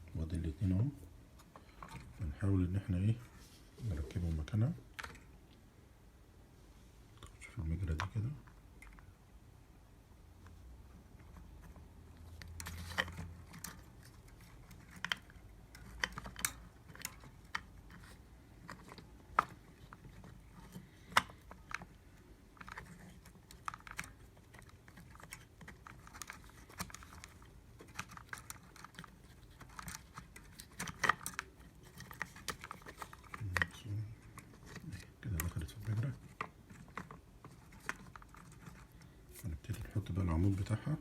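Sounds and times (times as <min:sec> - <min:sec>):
hard plastic parts clicking: 0:11.2 - 0:41.0.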